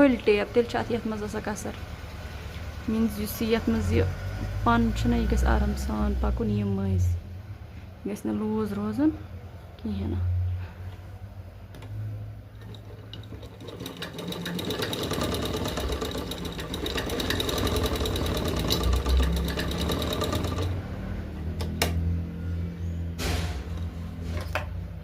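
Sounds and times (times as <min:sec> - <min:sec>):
sewing machine running: 0:12.6 - 0:21.1.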